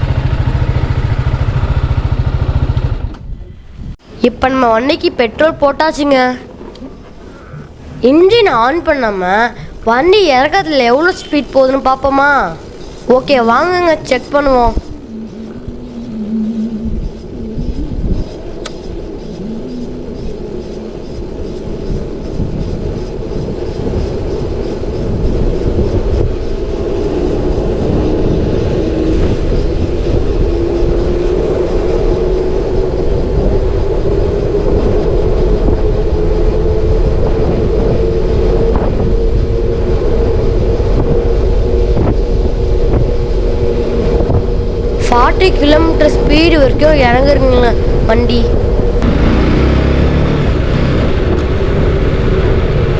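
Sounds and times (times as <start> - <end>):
motorcycle tires rolling: 0.0 - 4.1, 14.8 - 45.0, 47.8 - 52.9
rising hum: 0.0 - 52.9
wind noise: 0.0 - 52.9.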